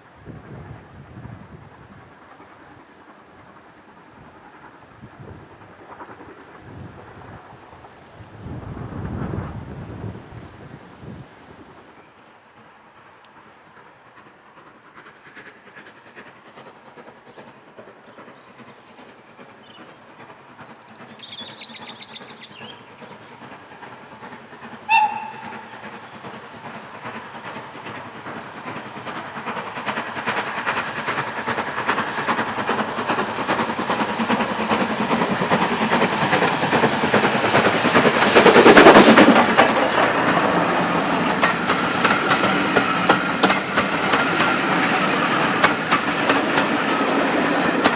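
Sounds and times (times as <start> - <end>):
steam train passing: 0.0 - 47.9
wheels rattling over rail joints: 14.0 - 47.9
high train whistle toot: 24.9 - 25.8.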